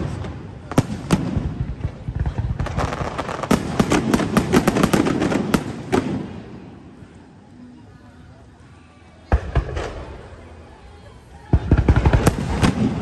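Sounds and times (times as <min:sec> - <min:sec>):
fireworks crackling bangs: 0:00.0 - 0:07.2, 0:09.3 - 0:10.5, 0:11.4 - 0:13.0
fireworks rumbling bursts: 0:00.0 - 0:07.8, 0:09.2 - 0:13.0.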